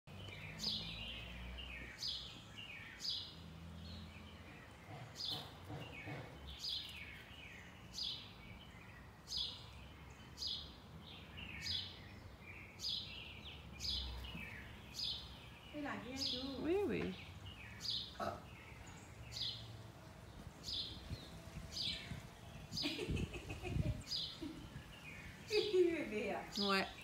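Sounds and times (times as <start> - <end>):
bird singing descending phrase: 0.2 - 5.4, 11.3 - 27.0.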